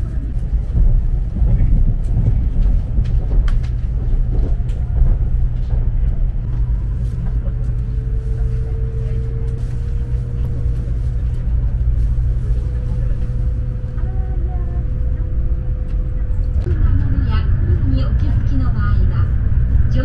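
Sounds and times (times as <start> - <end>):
train cabin low rumble: 0.0 - 20.0
faint steady whine: 6.4 - 19.2.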